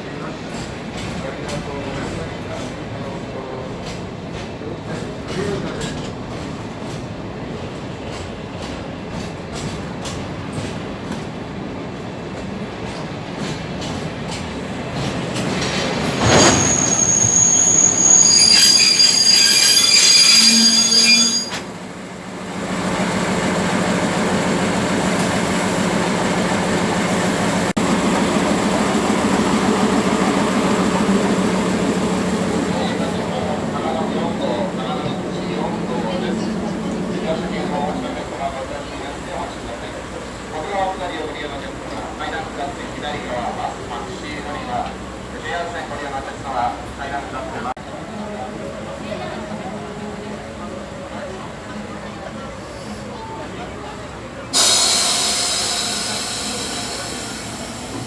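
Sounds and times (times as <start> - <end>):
train running on rails: 0.0 - 58.0
high-pitched wheel squeal: 16.2 - 21.7.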